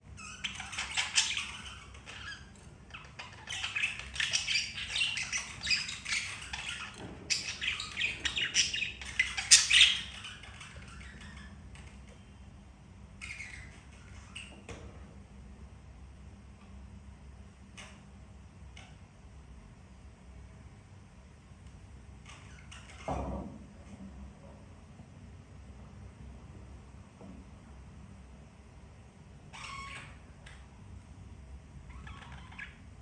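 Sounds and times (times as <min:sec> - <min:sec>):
budgerigar chattering and chirping: 0:00.2 - 0:12.1, 0:13.2 - 0:14.6, 0:29.5 - 0:30.7, 0:31.9 - 0:32.8.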